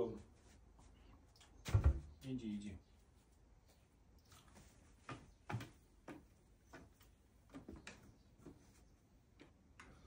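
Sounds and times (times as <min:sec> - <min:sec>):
bird feet tapping on hard surface: 0:05.0 - 0:08.7.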